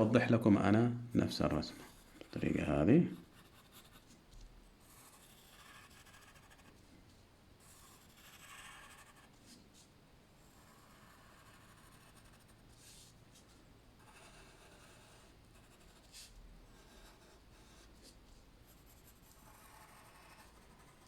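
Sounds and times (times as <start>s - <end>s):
drawing tool strokes on paper: 4.8s - 6.8s, 7.6s - 21.0s.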